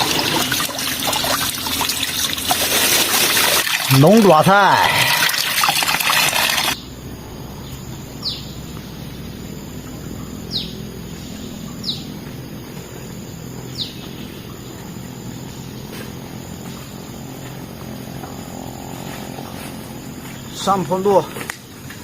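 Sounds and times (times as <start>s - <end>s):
running water: 0.0s - 6.8s
bird chirping: 6.8s - 18.6s
low background rumble: 6.8s - 20.6s.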